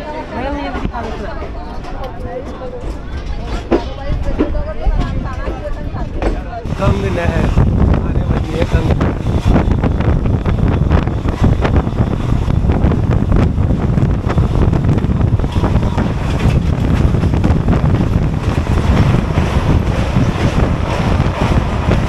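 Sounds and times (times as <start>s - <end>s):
train rattling and clatter: 0.0s - 22.0s
train rumbling: 0.0s - 22.0s
wind buffeting microphone: 0.0s - 22.0s.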